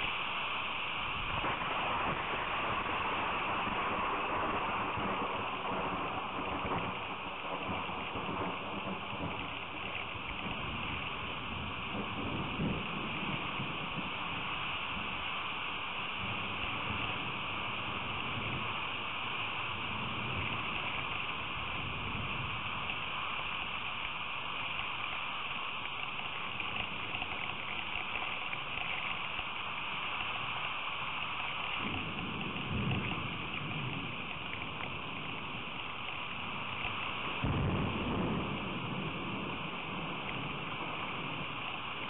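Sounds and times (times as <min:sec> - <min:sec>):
steady rain hiss: 0:00.0 - 0:42.0.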